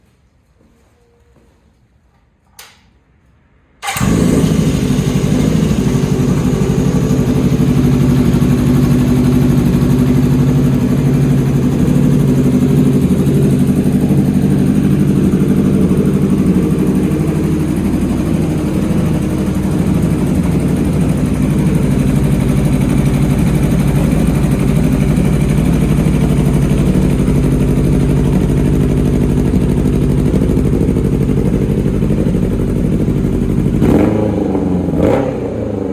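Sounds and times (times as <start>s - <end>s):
click: 2.5s - 2.9s
motorcycle engine starting and idling: 3.8s - 35.9s.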